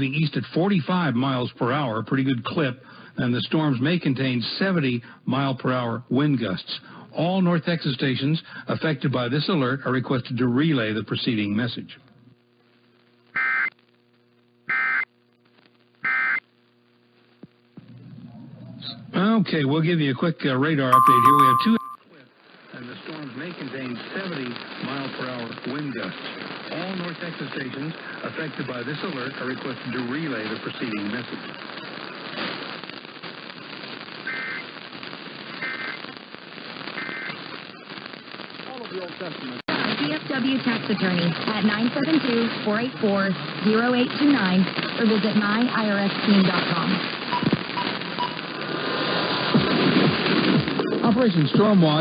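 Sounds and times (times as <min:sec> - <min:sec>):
faint steady hum: 0:00.0 - 0:20.2
radio static hiss and crackle: 0:00.0 - 0:21.0, 0:21.8 - 0:52.0
raspy digital data tone bursts: 0:21.0 - 0:22.0.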